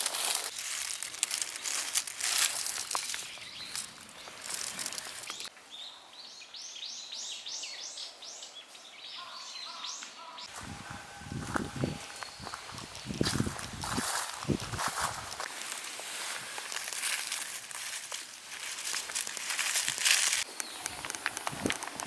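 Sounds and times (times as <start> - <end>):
dry firewood rustling and crackling: 0.0 - 5.5, 11.4 - 22.0
songbird chirping: 0.2 - 21.3.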